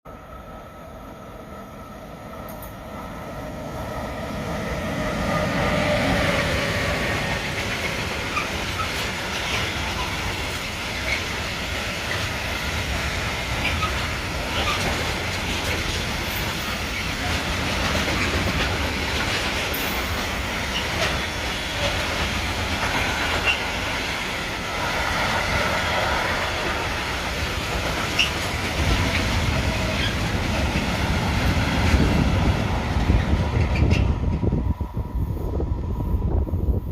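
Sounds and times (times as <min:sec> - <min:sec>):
train wheels rumbling: 0:00.5 - 0:36.9
wheels clicking over rail joints: 0:07.1 - 0:24.2.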